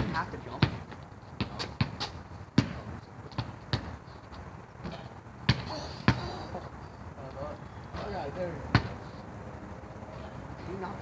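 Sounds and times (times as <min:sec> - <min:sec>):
basketball bouncing: 0:00.0 - 0:04.0, 0:04.8 - 0:06.3, 0:08.7 - 0:09.0.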